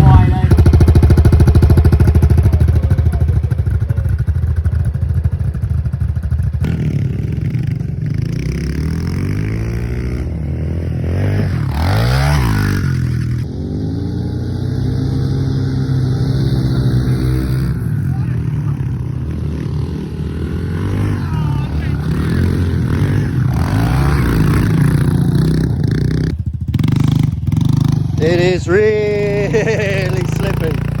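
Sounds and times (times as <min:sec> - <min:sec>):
dirt bike engines revving: 0:00.0 - 0:31.0
dirt bike passing close: 0:06.3 - 0:31.0.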